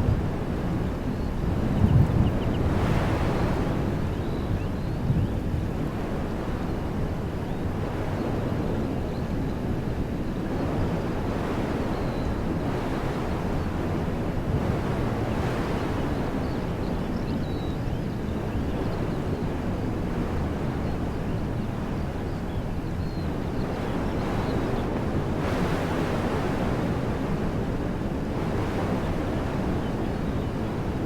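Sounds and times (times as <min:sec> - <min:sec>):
wind buffeting microphone: 0:00.0 - 0:31.0
wind rushing through trees: 0:00.0 - 0:31.0.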